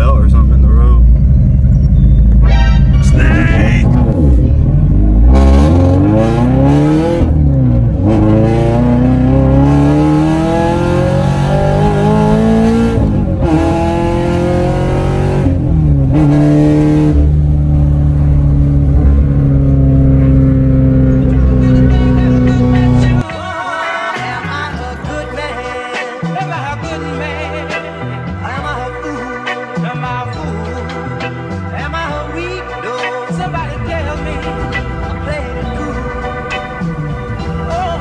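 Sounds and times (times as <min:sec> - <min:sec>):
car engine accelerating: 0:00.0 - 0:23.3, 0:33.4 - 0:38.0.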